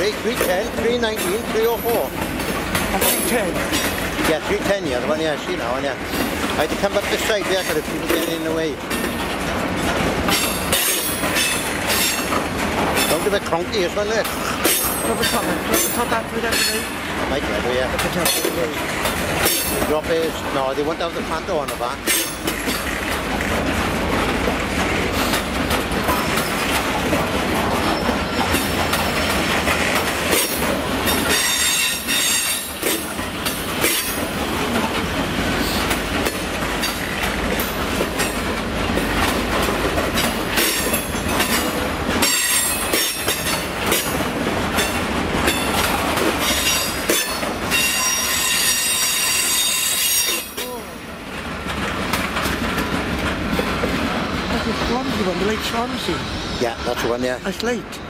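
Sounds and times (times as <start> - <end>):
wheels clacking over rail joints: 0.0 - 56.3
freight train rumbling past: 0.0 - 58.0
high wheel squeal: 31.2 - 32.8, 46.4 - 50.8, 54.3 - 57.4.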